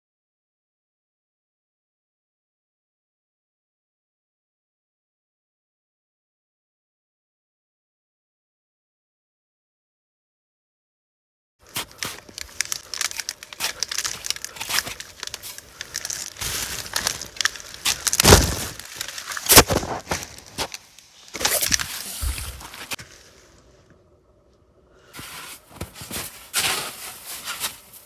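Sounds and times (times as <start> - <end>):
crinkling handling noise: 11.6 - 24.0, 25.1 - 28.0
heavy thumps: 13.8 - 20.8.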